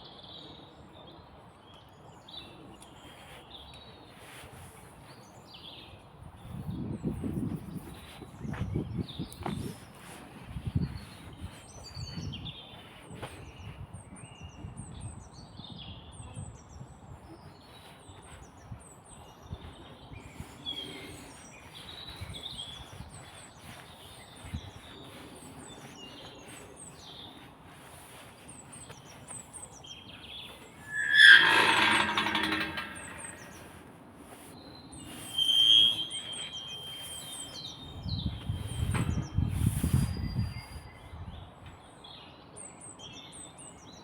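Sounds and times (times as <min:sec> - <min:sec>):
small birds chirping: 0:00.1 - 0:44.0
harsh squealing: 0:30.8 - 0:33.7, 0:35.2 - 0:37.0.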